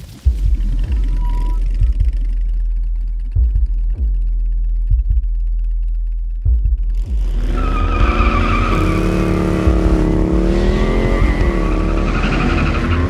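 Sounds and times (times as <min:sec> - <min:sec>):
motorcycle engine at speed: 0:00.2 - 0:13.0
screech: 0:07.2 - 0:13.0.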